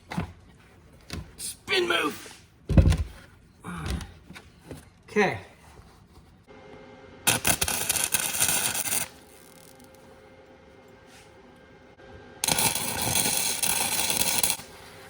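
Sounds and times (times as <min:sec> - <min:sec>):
welder arc crackling: 0:07.3 - 0:10.0, 0:12.4 - 0:15.0.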